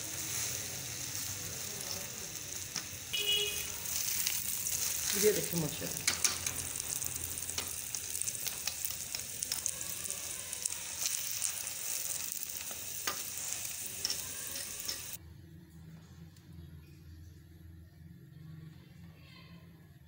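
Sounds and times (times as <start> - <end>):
flatbread sizzling in a pan: 0.0 - 15.2
spatula clicks and scrapes: 12.6 - 15.2.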